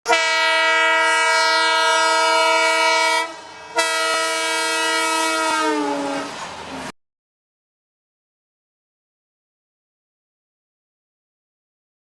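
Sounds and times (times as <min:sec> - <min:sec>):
train air horn blasts: 0:00.0 - 0:06.4.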